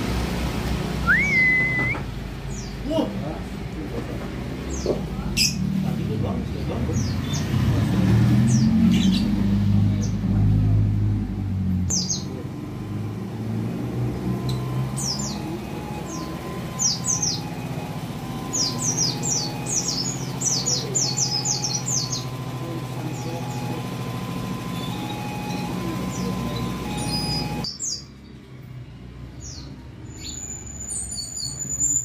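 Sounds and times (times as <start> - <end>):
road traffic rumble: 0.0 - 32.0
birds calling high thin notes: 1.0 - 3.1, 14.1 - 28.2.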